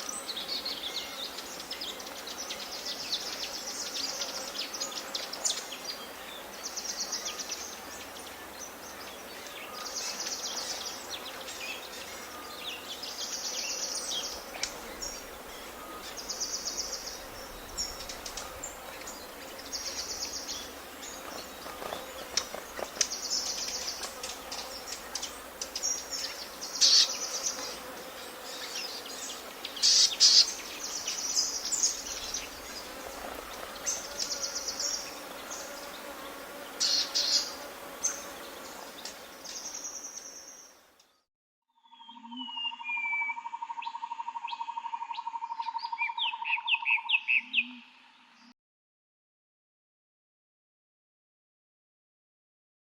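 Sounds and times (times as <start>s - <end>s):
bird chirps: 41.8s - 48.5s.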